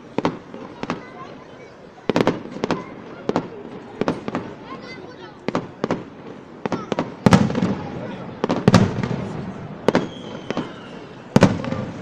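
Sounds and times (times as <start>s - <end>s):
fireworks bangs: 0.0s - 12.0s
light firework cracks: 2.1s - 4.8s, 5.4s - 12.0s
firework whistle gliding down: 9.9s - 11.4s.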